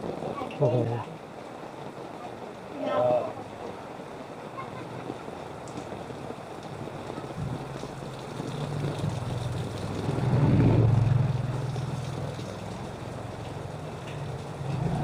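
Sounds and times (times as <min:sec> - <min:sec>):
motor vehicle engine humming: 0:05.3 - 0:15.0.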